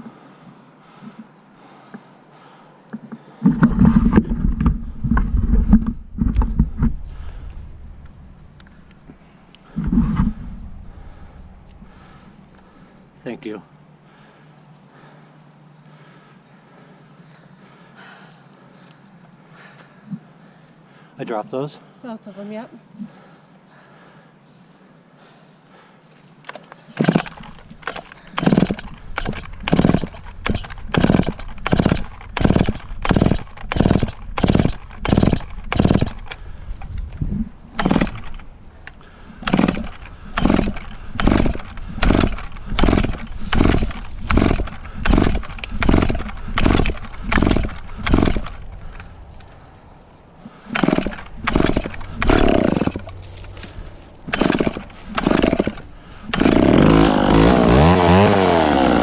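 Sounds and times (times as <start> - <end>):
chainsaw starter cord pulls: 3.4 - 7.4, 26.5 - 37.2, 37.8 - 49.6, 50.6 - 59.0
chainsaw engine running: 3.5 - 8.8, 26.6 - 36.6, 37.8 - 49.2, 50.5 - 59.0.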